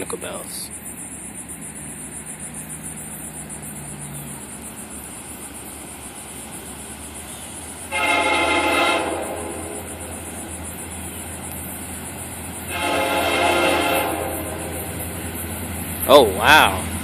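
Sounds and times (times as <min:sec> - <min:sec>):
locomotive air horn blast: 0:07.9 - 0:10.2, 0:12.6 - 0:15.2.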